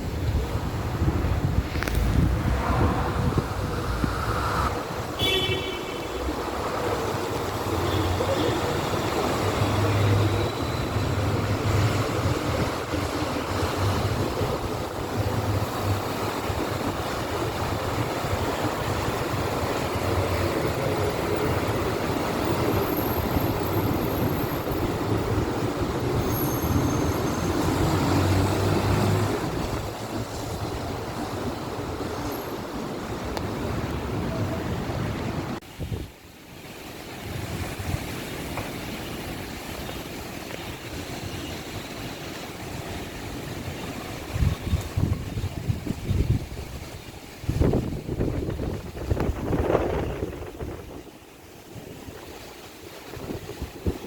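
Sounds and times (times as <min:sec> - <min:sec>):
strong wind rushing: 0:00.0 - 0:07.9, 0:43.9 - 0:54.0
wind buffeting microphone: 0:00.0 - 0:36.3, 0:37.0 - 0:54.0.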